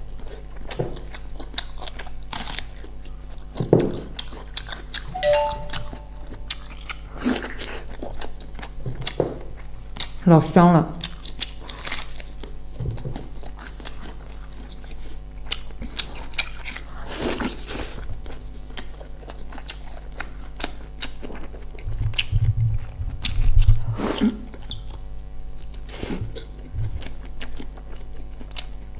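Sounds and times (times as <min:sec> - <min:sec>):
crunchy chewing: 0:00.2 - 0:05.1, 0:11.0 - 0:22.3, 0:23.2 - 0:28.9.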